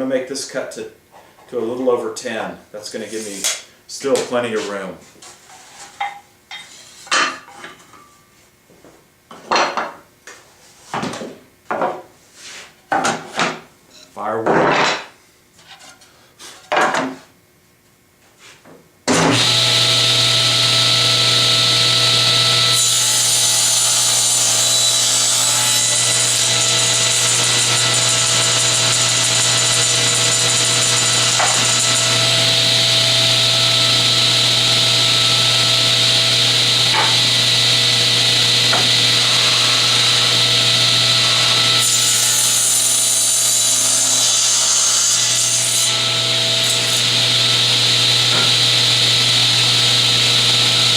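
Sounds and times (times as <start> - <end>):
table saw running: 19.1 - 50.9.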